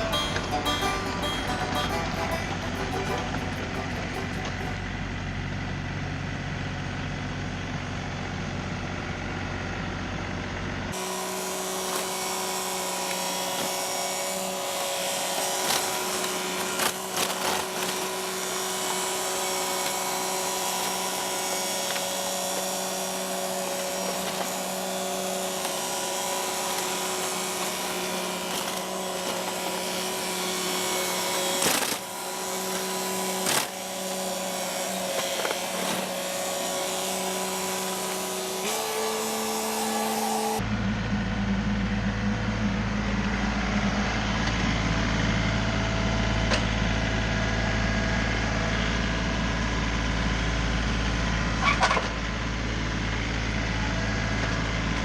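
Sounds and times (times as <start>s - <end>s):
tractor engine whining drone: 0.0s - 55.0s
dull engine sound: 15.6s - 55.0s.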